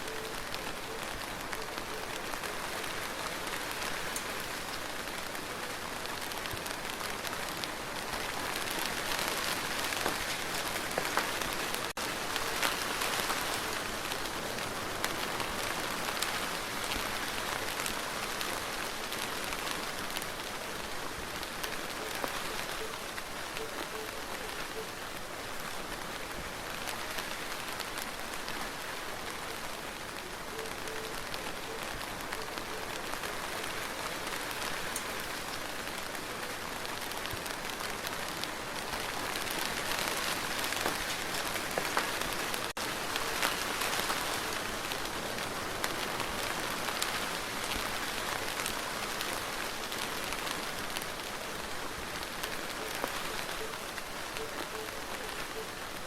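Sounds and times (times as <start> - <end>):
raindrops tapping on a surface: 6.0 - 14.4, 36.9 - 45.0.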